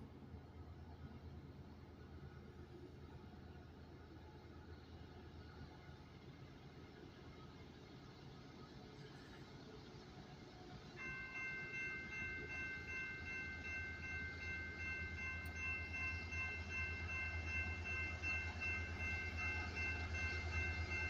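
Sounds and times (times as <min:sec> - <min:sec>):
diesel locomotives throbbing: 0:11.0 - 0:21.0.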